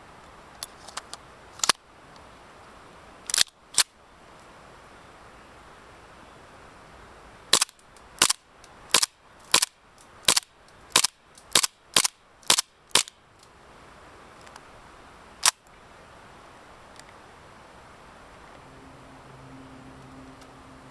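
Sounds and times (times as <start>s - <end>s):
airsoft pistol shots: 7.6s - 9.7s, 11.0s - 13.1s.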